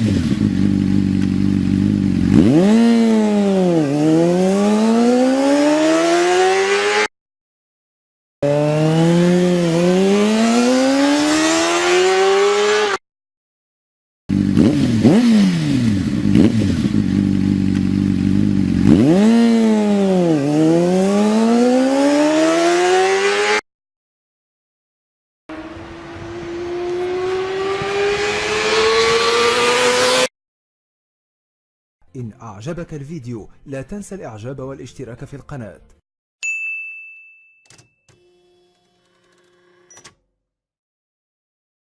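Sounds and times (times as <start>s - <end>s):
motorcycle engine revving: 0.0s - 7.1s, 8.4s - 13.0s, 14.3s - 23.6s, 25.5s - 30.3s.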